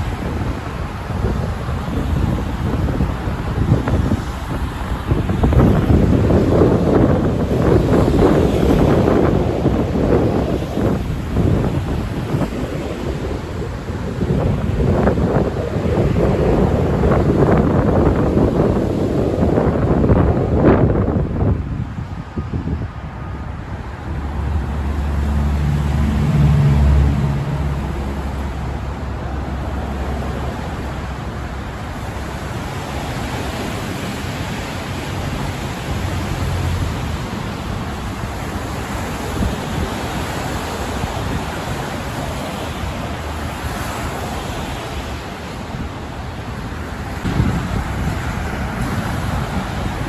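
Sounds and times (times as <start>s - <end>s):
rush of motor traffic: 0.0s - 50.0s
wind: 0.0s - 50.0s
vehicle engine drone passing: 23.0s - 42.4s.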